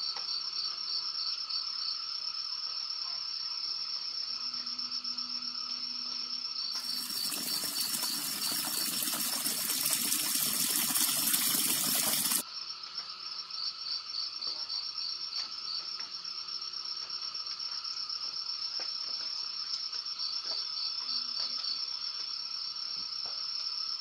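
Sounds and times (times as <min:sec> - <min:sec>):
crickets chirping: 0:00.0 - 0:24.0
running water splashing: 0:06.8 - 0:12.4.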